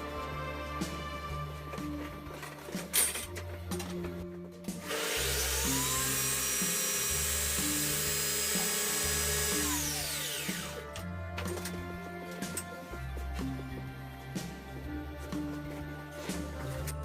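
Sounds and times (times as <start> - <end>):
background music: 0.0 - 17.0
power tool motor whining: 4.8 - 11.0.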